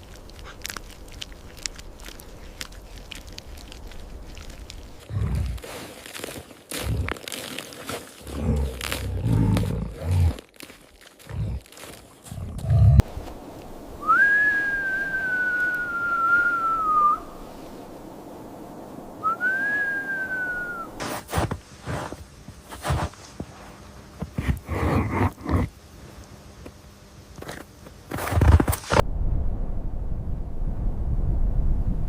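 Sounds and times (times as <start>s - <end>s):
crunching and knocking: 0.0s - 12.8s.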